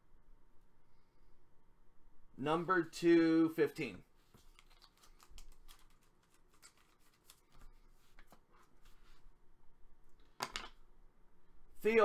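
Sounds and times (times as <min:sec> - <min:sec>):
trading cards clicking and rustling: 0:04.3 - 0:08.5.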